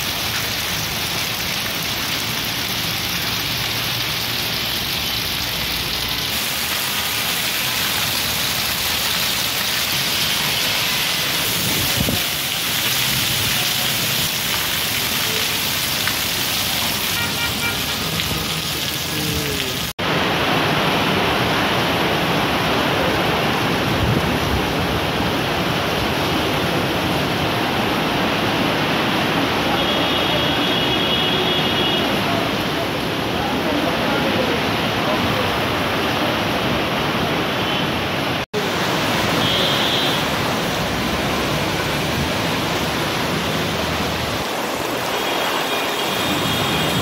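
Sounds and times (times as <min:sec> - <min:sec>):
heavy rain pouring: 0:00.0 - 0:47.0.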